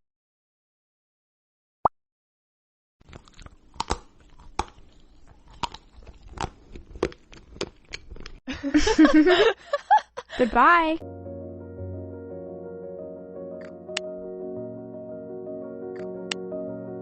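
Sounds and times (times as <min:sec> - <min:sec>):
crunchy food being chewed: 0:03.0 - 0:08.4.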